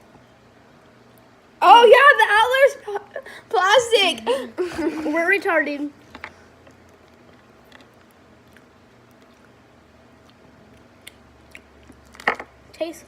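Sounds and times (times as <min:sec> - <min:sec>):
soft clicks of candy eating: 0:01.1 - 0:01.3, 0:06.1 - 0:09.6, 0:10.2 - 0:12.3.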